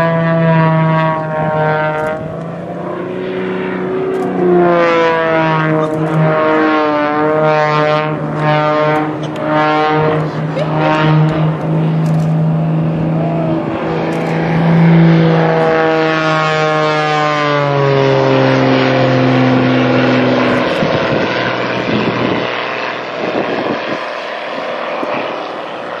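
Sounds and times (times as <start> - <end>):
broad rushing noise: 0.0 - 26.0
propeller airplane flying past: 0.0 - 26.0.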